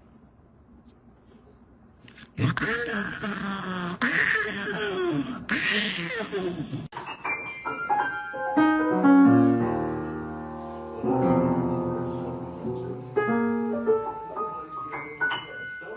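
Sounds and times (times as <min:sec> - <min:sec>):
piano music: 0:07.0 - 0:15.9.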